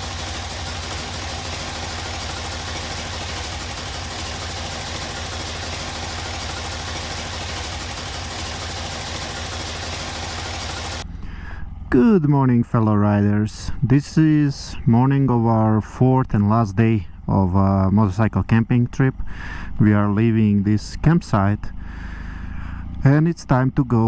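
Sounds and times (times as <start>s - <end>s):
motorcycle engine idling: 0.0s - 11.9s, 19.1s - 23.1s.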